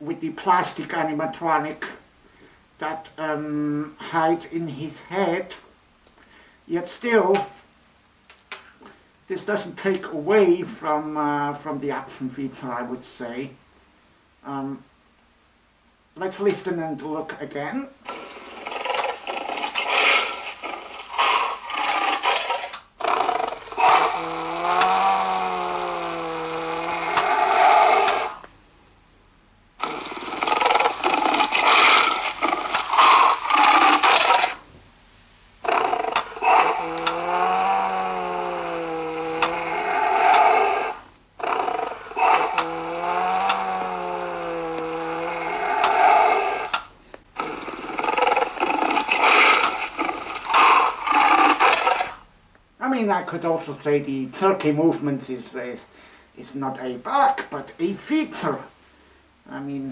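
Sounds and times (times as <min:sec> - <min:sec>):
toy lion growl: 0:18.0 - 0:28.5, 0:29.8 - 0:34.7, 0:35.6 - 0:52.3
toy speaker bending roar: 0:18.0 - 0:28.6, 0:29.8 - 0:34.8, 0:35.6 - 0:52.4.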